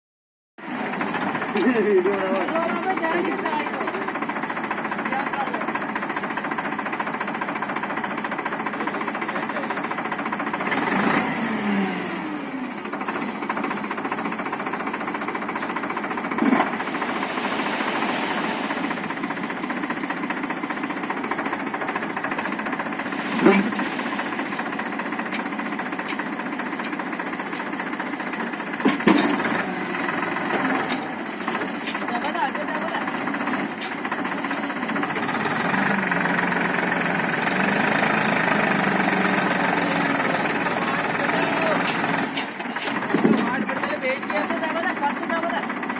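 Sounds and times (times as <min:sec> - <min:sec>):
tractor diesel engine running: 0:00.6 - 0:45.9.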